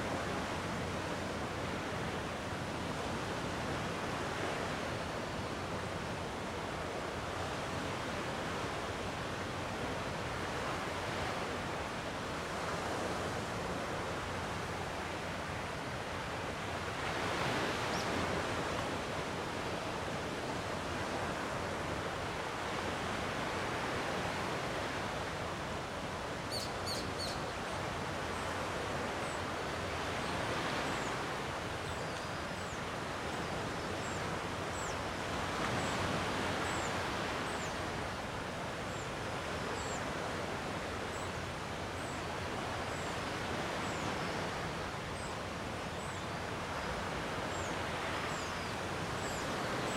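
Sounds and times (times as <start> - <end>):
small bird chirping: 26.5 - 27.4.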